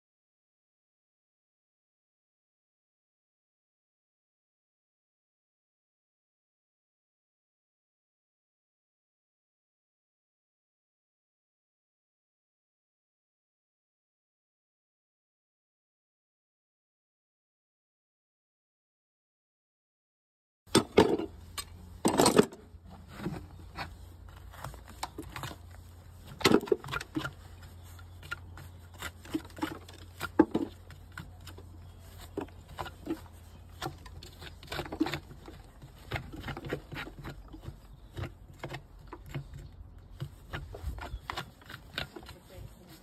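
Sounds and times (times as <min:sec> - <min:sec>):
tools scraping hoof: 0:20.7 - 0:43.0.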